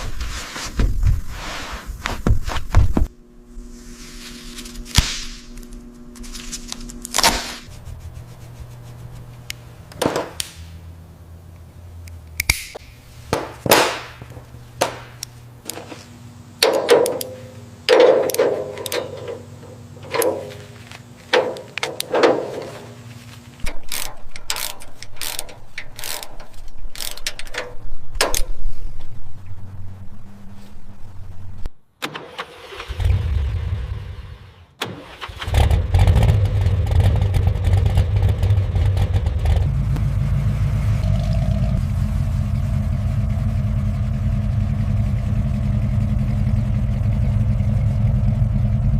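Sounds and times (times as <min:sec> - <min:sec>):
low steady hum: 0:00.0 - 0:31.8, 0:37.8 - 0:48.9
metal clanks and knocks: 0:16.6 - 0:23.0
ratchet clicks: 0:23.7 - 0:27.7.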